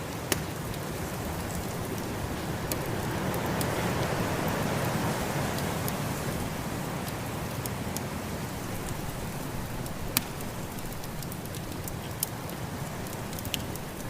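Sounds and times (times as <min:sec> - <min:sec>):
wood fire crackling: 0:00.0 - 0:14.0
rushing storm wind: 0:00.6 - 0:14.0
sharp pops of fire: 0:09.8 - 0:12.3.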